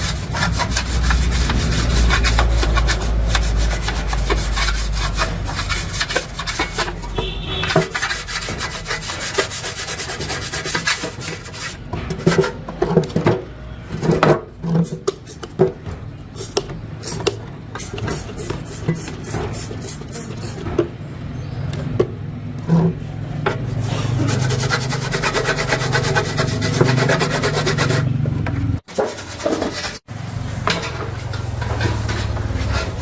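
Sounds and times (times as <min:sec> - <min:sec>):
abrasive rubbing strokes: 0:00.0 - 0:11.8.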